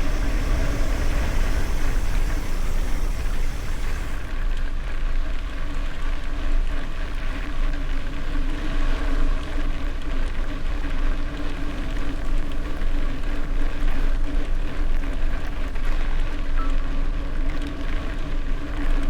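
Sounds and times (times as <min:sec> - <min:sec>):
wind rumbling on microphone: 0:00.0 - 0:04.4
steady hum: 0:00.0 - 0:04.6.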